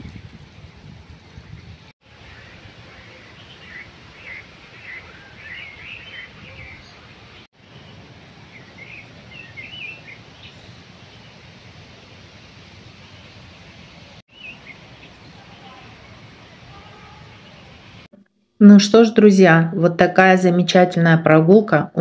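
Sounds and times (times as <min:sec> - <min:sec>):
songbird chirping: 0:02.1 - 0:18.1.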